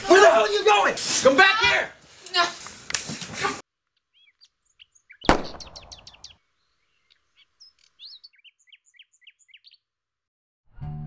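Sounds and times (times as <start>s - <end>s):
small birds chirping: 3.8s - 10.0s
loud sharp bang: 5.3s - 6.2s.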